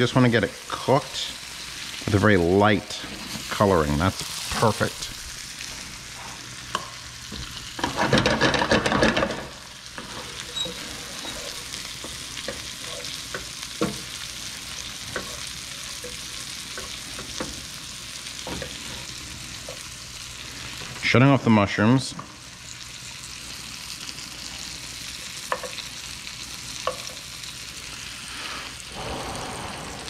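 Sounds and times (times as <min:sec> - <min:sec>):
chicken sizzling in a pan: 0:00.0 - 0:30.0
stirring in a pan: 0:09.9 - 0:20.9.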